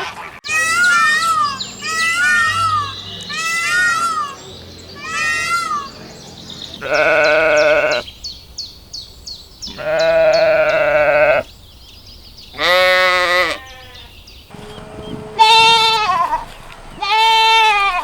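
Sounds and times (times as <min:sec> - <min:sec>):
sheep bleating: 0:00.4 - 0:04.4, 0:05.0 - 0:06.0, 0:06.8 - 0:08.1, 0:09.7 - 0:11.5, 0:12.6 - 0:18.0.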